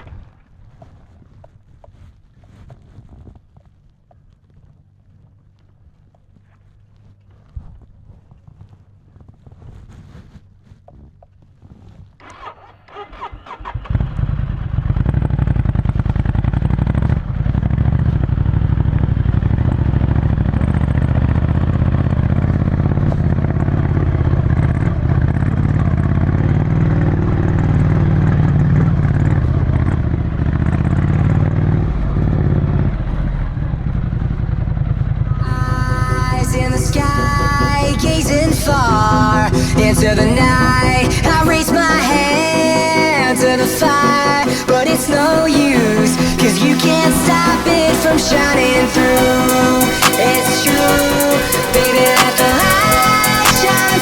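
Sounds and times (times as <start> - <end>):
motorcycle engine idling: 12.2 - 54.0
music: 35.4 - 54.0.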